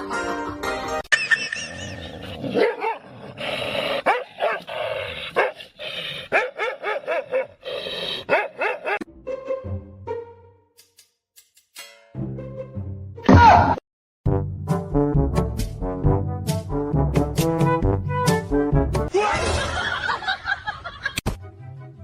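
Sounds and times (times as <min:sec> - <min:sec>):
dog barking and yipping: 0:02.5 - 0:03.0, 0:04.0 - 0:04.7, 0:05.4 - 0:05.6, 0:06.3 - 0:07.6, 0:08.2 - 0:09.1.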